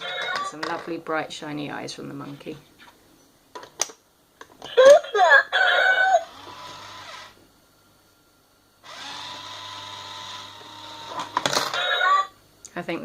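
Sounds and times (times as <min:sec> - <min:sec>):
small electric motor whirring: 0:06.0 - 0:07.4, 0:08.8 - 0:11.4.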